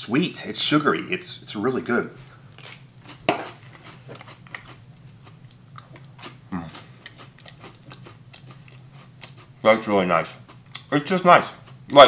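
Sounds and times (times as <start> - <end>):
crunchy cracker being chewed: 2.6 - 9.5
person humming: 6.5 - 6.9.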